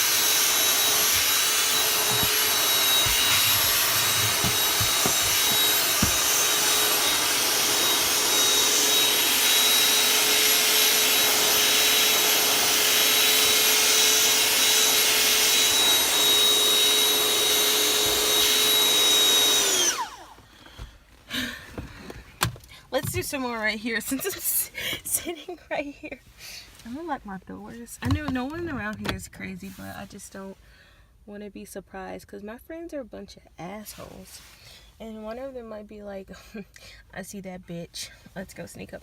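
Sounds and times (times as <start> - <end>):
vacuum cleaner whining: 0.0 - 25.3.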